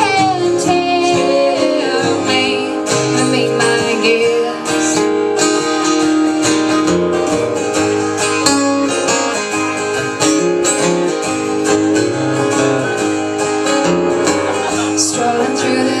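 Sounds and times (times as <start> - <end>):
strummed acoustic guitar: 0.0 - 16.0
bass line: 6.7 - 15.1.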